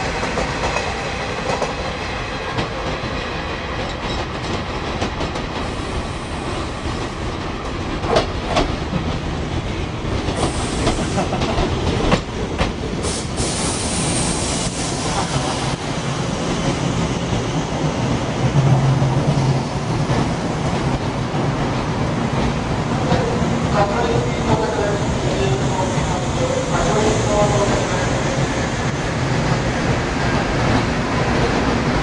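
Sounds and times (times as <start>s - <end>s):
train wheels clacking: 10.1s - 15.8s.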